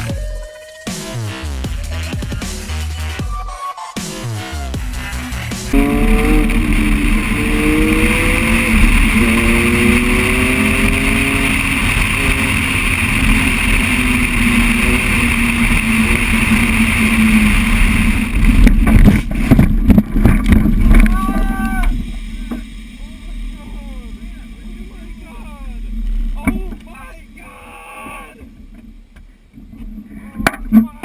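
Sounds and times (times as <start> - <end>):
vehicle engine running: 4.8 - 27.4
road and wind noise: 5.2 - 27.4.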